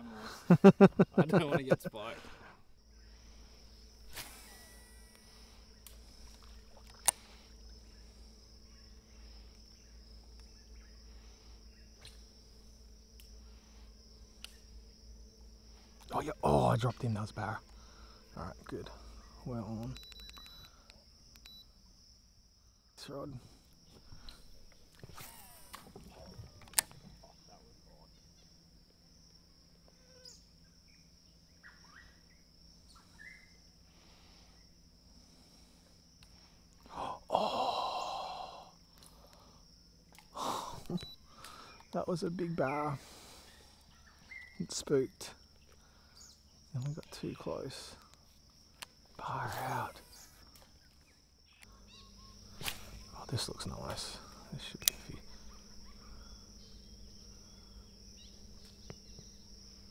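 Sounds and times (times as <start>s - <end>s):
insect chorus: 0.0s - 59.9s
sharp click: 21.3s - 21.6s.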